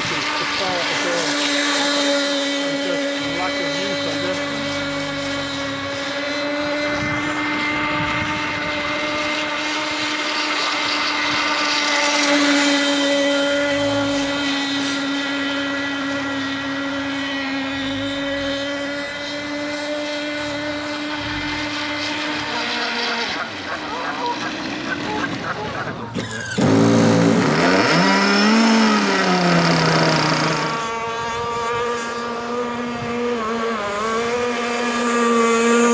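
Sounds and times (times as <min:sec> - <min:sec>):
model boat motor whine: 0:00.0 - 0:35.9.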